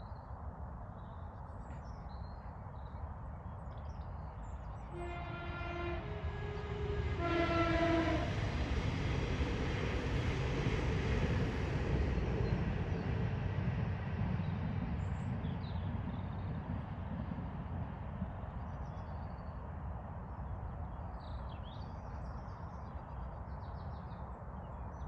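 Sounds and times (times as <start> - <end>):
deep horn blasts: 4.9 - 8.5.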